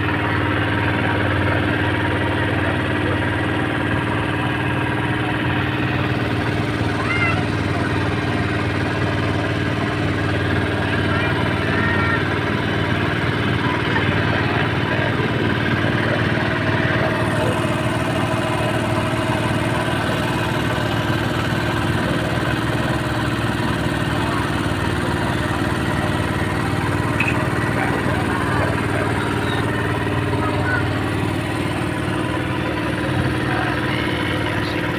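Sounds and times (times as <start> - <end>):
engine running steadily: 0.0 - 34.9.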